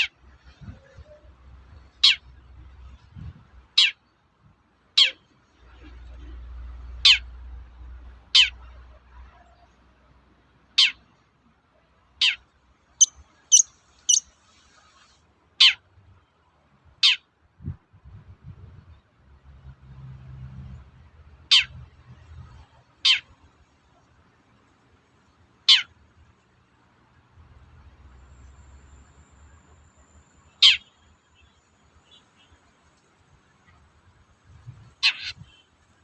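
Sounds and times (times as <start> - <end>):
bird call sweeping downward: 13.0 - 14.2.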